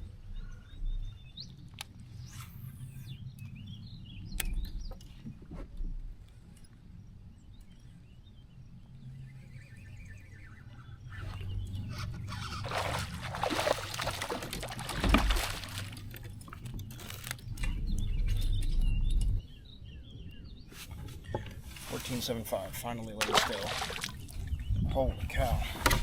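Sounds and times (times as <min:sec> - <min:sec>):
birds chirping faintly: 0:00.0 - 0:25.6
water splashing around kayak: 0:12.4 - 0:17.3, 0:23.1 - 0:24.5.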